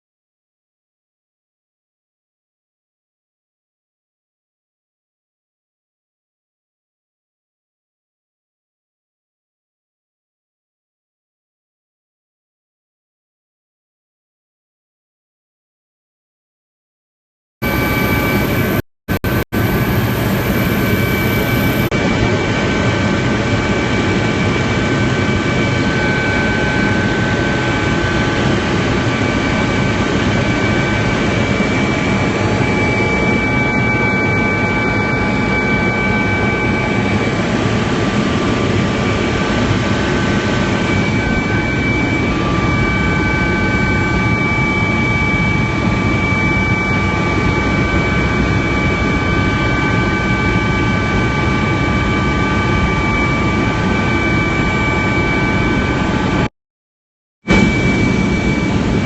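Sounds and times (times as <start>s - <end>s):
helicopter turbine and rotor noise: 17.6s - 56.5s, 57.5s - 59.0s.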